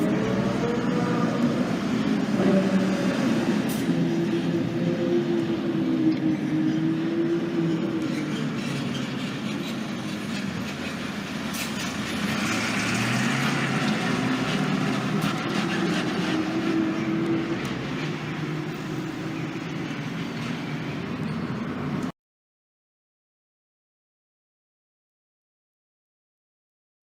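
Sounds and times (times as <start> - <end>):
road noise rumble: 0.0 - 22.1
vehicle engines running: 0.0 - 22.1.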